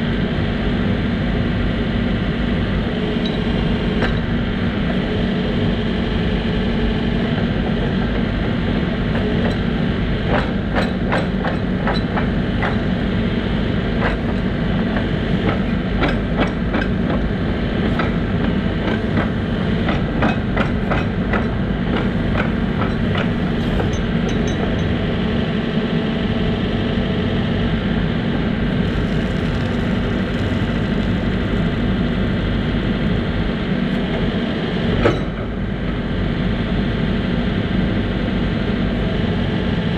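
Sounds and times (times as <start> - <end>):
diesel engine running: 27.7 - 34.2.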